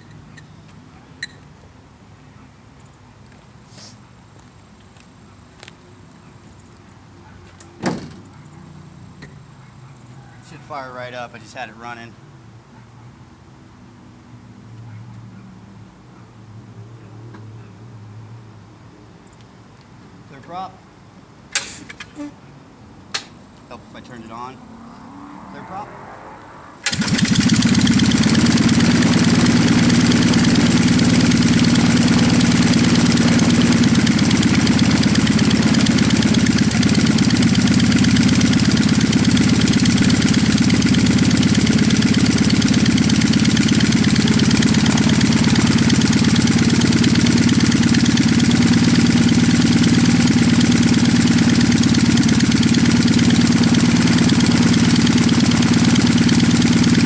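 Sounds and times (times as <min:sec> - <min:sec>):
aircraft engine running: 0:23.2 - 0:57.0.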